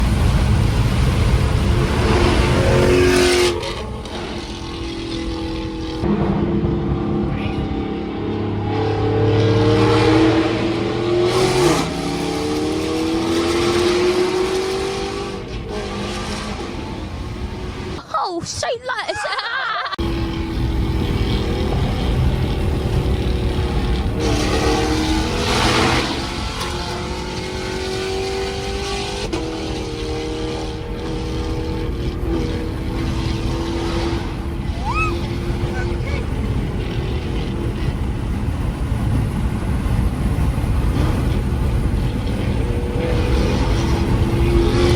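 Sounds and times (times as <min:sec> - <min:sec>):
car engine accelerating hard: 0:00.0 - 0:18.0, 0:20.0 - 0:44.9
loud rush of noise: 0:00.0 - 0:18.0.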